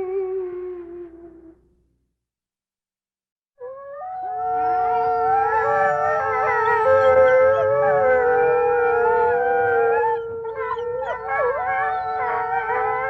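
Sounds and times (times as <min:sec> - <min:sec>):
wolves howling: 0:03.6 - 0:13.0.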